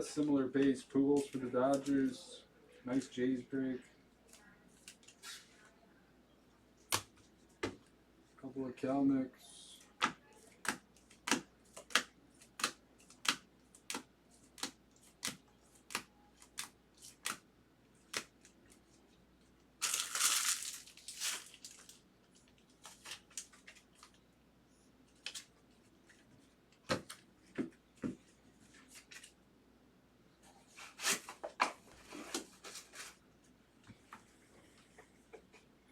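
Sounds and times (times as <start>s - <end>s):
wrapper tearing open: 19.8s - 22.0s
wrapper crinkling: 19.8s - 24.2s.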